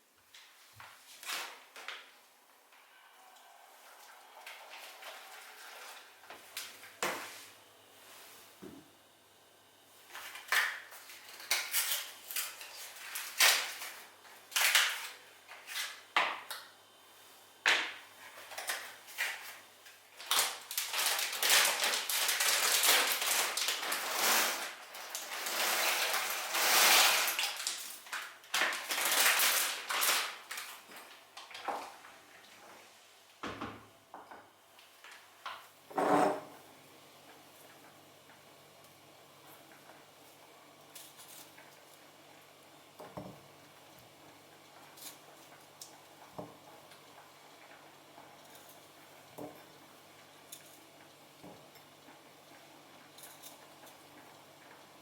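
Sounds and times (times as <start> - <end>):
hiss: 24.0 - 27.4
dishes and utensils clinking: 35.9 - 36.6.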